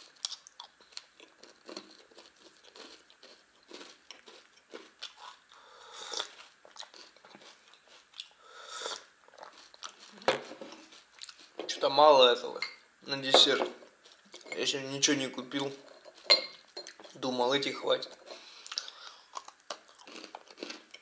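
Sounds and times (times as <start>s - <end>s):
person chewing crunchy cereal: 0.0s - 11.6s, 18.2s - 21.0s
person sipping tea: 5.1s - 7.0s, 8.2s - 11.6s.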